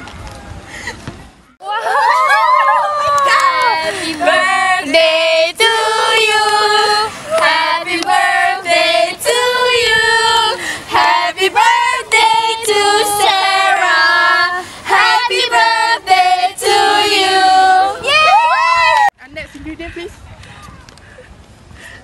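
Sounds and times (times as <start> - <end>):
women singing unaccompanied: 2.8 - 18.2.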